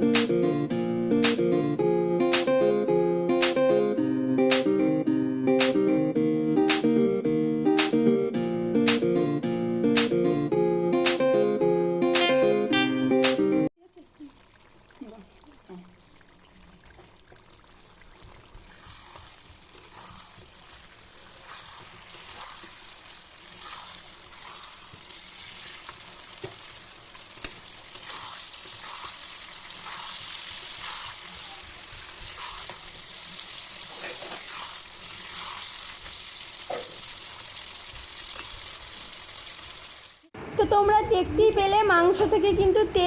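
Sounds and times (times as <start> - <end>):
chicken sizzling in a pan: 13.9 - 40.4.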